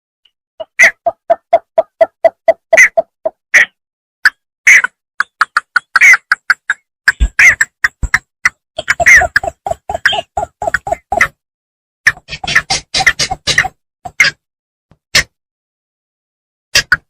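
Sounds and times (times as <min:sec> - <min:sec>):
bittern calling: 0:08.8 - 0:11.4.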